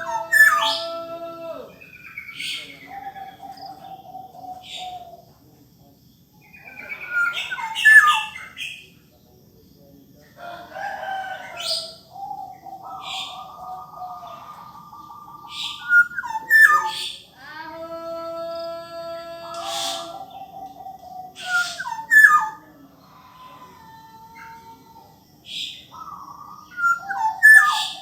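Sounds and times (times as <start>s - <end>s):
bird singing fluty whistles: 14.7s - 17.2s, 21.0s - 22.6s, 26.4s - 28.0s.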